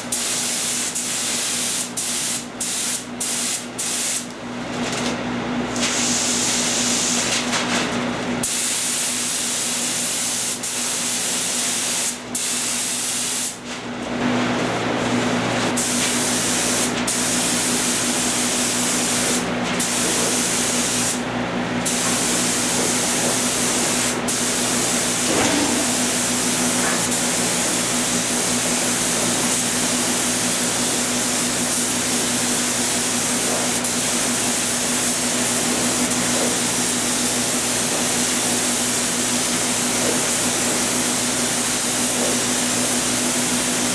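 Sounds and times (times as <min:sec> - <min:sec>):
paint spray gun hissing: 0:15.8 - 0:21.2, 0:21.8 - 0:43.9.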